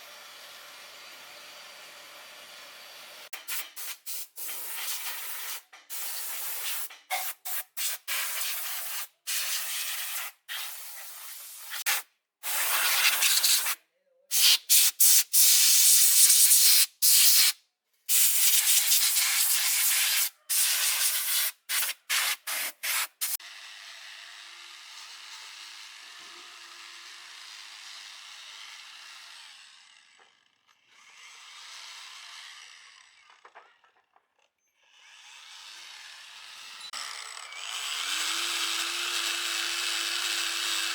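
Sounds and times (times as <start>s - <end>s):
harsh hissing bursts: 3.5s - 23.4s.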